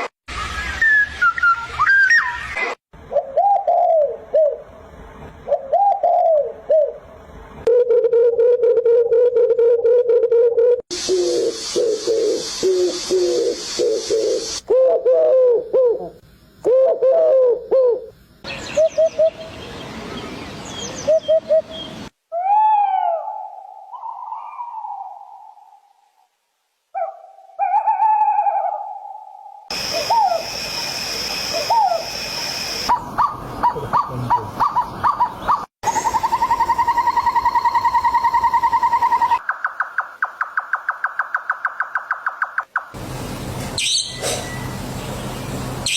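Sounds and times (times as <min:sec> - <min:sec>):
faint higher chirps: 0:27.6 - 0:33.0
fast bird trill: 0:43.8 - 0:44.7
low pitched bird notes: 0:43.8 - 0:45.9.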